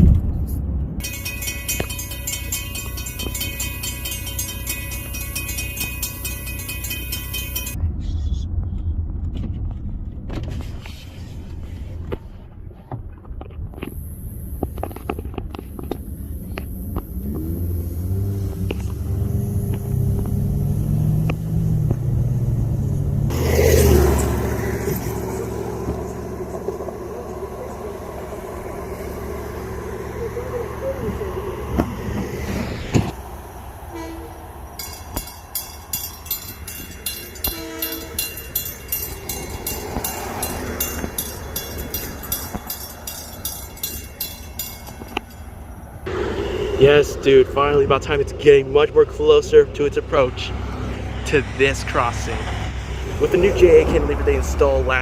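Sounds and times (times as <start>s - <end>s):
railroad crossing bell ringing: 1.0s - 7.8s, 23.3s - 32.3s, 33.2s - 48.2s
car engine accelerating: 13.8s - 55.0s
distant train horn blasts: 33.3s - 42.6s, 46.1s - 47.5s.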